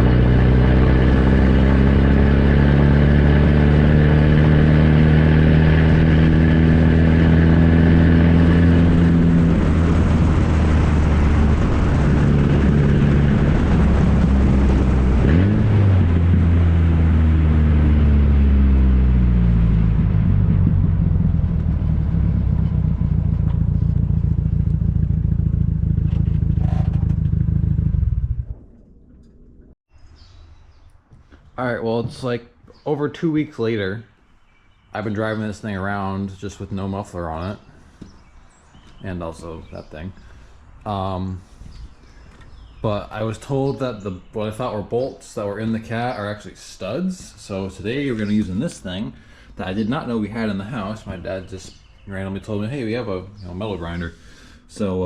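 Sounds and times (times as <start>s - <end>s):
unmuffled engine exhaust: 0.0s - 29.8s.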